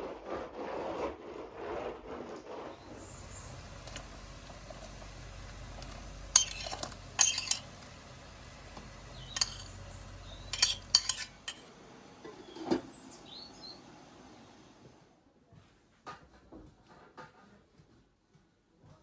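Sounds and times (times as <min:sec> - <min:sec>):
dishes and utensils clinking: 0:06.3 - 0:08.0, 0:08.7 - 0:13.0
bird-like chirps: 0:09.1 - 0:10.8, 0:12.4 - 0:13.9.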